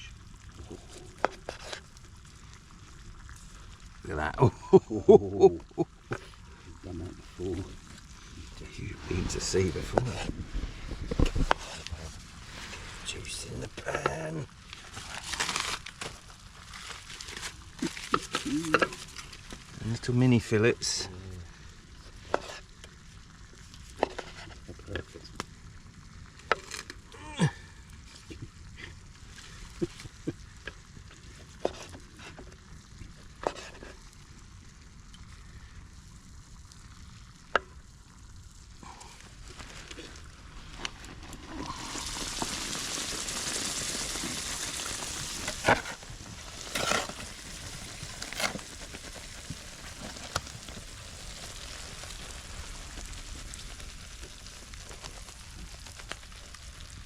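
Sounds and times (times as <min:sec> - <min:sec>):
meat sizzling in a frying pan: 0:00.0 - 0:57.0.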